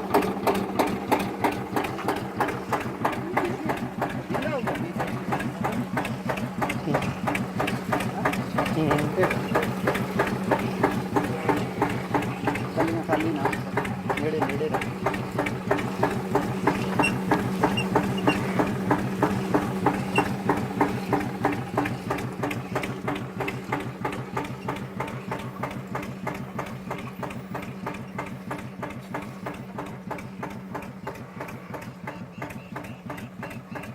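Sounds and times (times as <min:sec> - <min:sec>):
tractor engine idling: 0:00.0 - 0:33.9.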